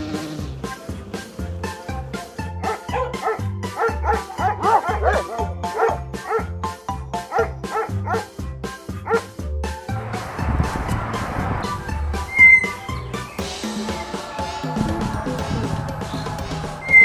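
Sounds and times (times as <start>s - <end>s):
music with steady beat: 0.0s - 17.0s
dog barking: 2.6s - 6.5s, 7.2s - 8.3s, 9.0s - 9.2s.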